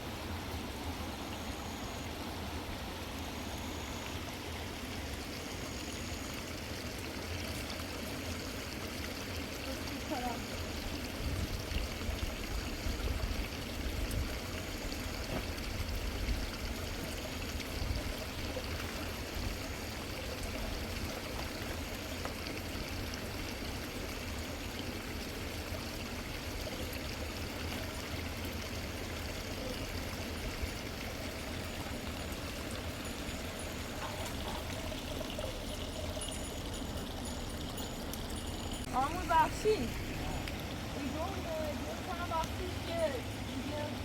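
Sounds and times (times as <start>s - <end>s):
river water rushing: 27.6s - 44.0s.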